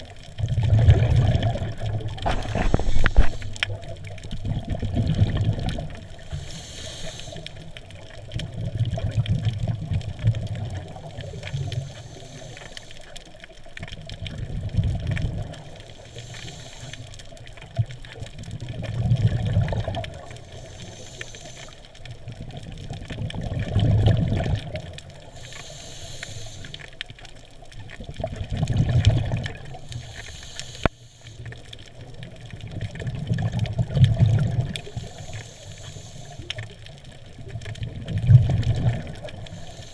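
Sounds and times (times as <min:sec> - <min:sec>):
exhaled bubbles rumbling: 0:00.0 - 0:12.4, 0:13.2 - 0:21.2, 0:21.8 - 0:25.8, 0:26.5 - 0:30.2, 0:31.5 - 0:39.9
regulator hiss on inhale: 0:01.7 - 0:04.0, 0:06.0 - 0:08.1, 0:10.8 - 0:13.5, 0:15.4 - 0:18.2, 0:19.8 - 0:22.5, 0:25.1 - 0:27.6, 0:29.6 - 0:32.3, 0:34.6 - 0:37.0, 0:38.8 - 0:39.9.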